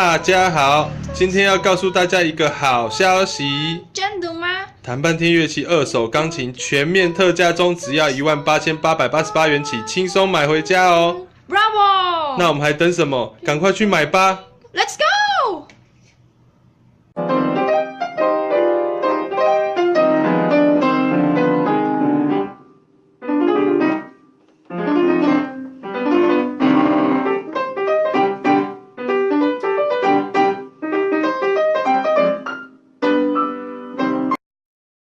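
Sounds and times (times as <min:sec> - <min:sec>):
piano playing: 0:00.0 - 0:04.0, 0:04.7 - 0:11.3, 0:17.1 - 0:34.4.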